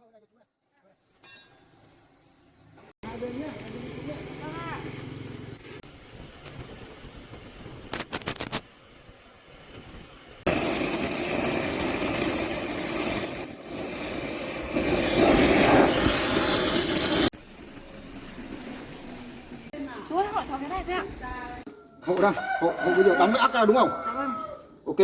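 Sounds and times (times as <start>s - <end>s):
metal cutting roar: 10.4s - 17.6s.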